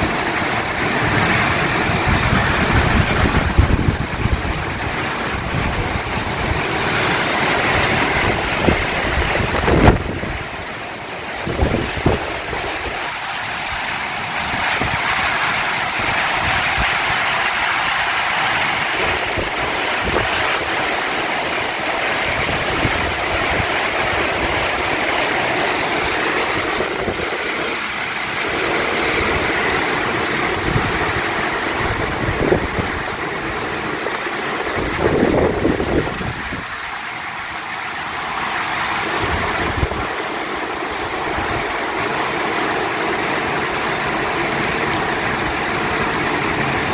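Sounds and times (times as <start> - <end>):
wind rumbling on microphone: 0.0 - 10.7, 11.4 - 13.1, 14.4 - 17.7, 18.6 - 36.9, 39.0 - 42.4
heavy rain pouring: 0.0 - 46.9.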